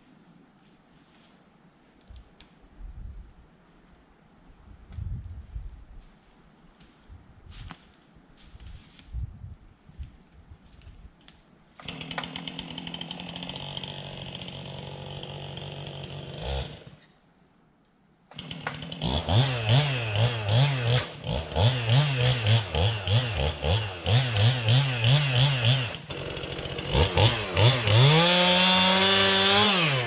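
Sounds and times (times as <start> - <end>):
chainsaw engine revving: 11.8 - 17.0, 18.3 - 30.0.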